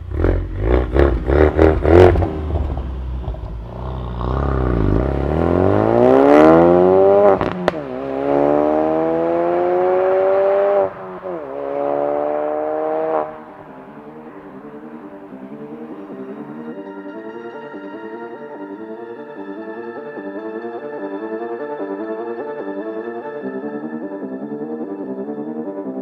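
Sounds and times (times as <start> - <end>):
car engine revving: 0.0 - 16.5
car accelerating through gears: 0.1 - 15.0.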